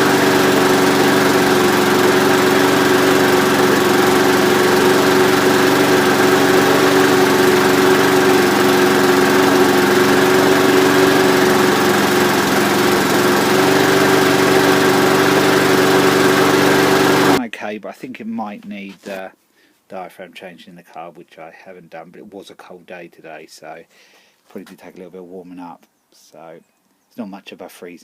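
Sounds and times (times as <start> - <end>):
lawnmower engine running: 0.0 - 17.4.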